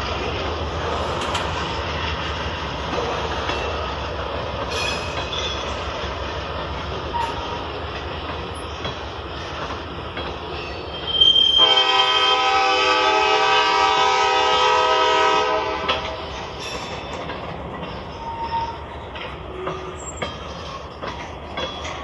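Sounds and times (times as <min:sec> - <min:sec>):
train rumble and clatter: 0:00.0 - 0:22.0
train horn long blast: 0:11.2 - 0:16.2.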